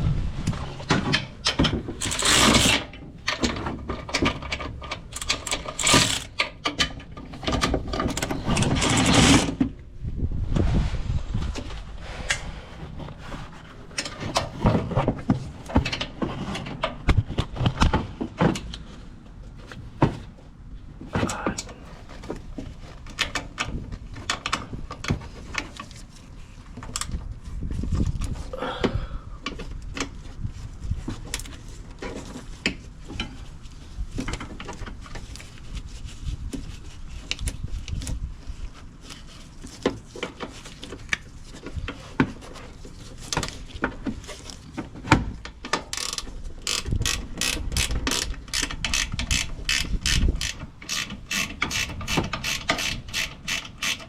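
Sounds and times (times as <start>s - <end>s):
ratchet wrench clicking: 2.0s - 2.7s, 5.1s - 6.5s, 45.9s - 54.0s.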